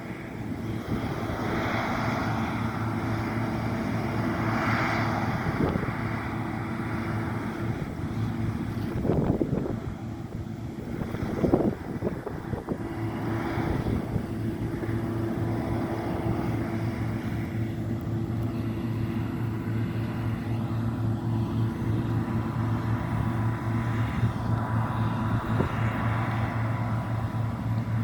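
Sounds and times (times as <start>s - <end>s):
combine harvester droning: 0.0s - 28.0s
wind buffeting microphone: 0.0s - 28.0s.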